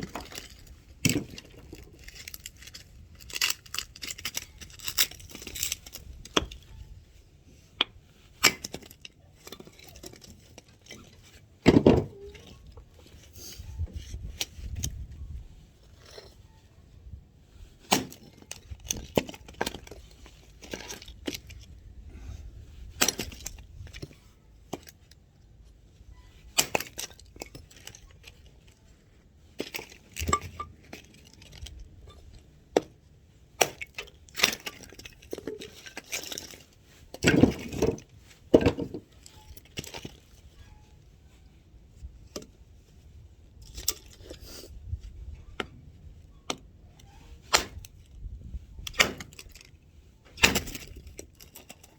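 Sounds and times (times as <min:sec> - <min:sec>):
axe chopping firewood: 0:07.8 - 0:08.9, 0:17.9 - 0:19.8, 0:26.6 - 0:27.0, 0:37.2 - 0:38.0, 0:47.5 - 0:47.9, 0:48.9 - 0:49.5, 0:50.4 - 0:51.2.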